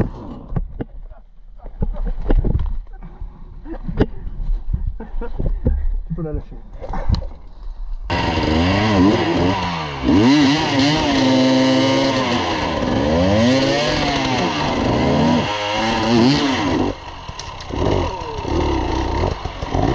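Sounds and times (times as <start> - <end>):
dirt bike engine revving: 8.1 - 19.9.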